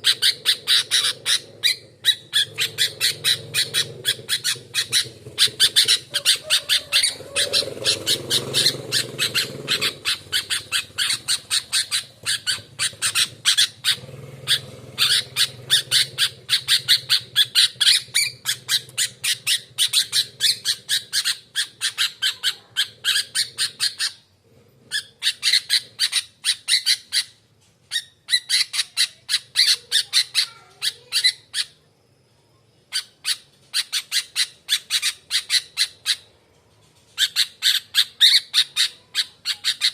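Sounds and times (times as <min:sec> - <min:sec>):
bird chattering harsh notes: 0:00.0 - 0:24.3.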